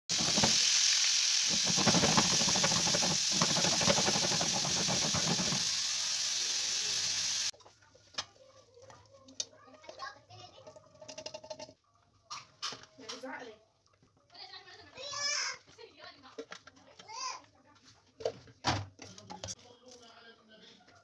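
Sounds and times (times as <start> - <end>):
food and utensil clattering in pan: 0.1 - 0.7, 1.5 - 5.8
meatballs sizzling in a frying pan: 0.1 - 7.5.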